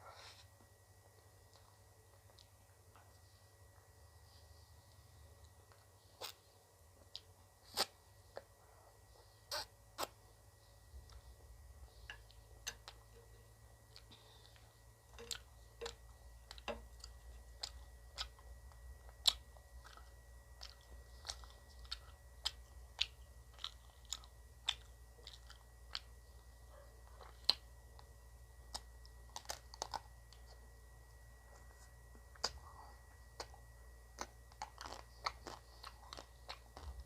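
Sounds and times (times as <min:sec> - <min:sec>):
person crunching ice cream: 0:13.9 - 0:26.4, 0:28.7 - 0:30.6, 0:33.4 - 0:37.0.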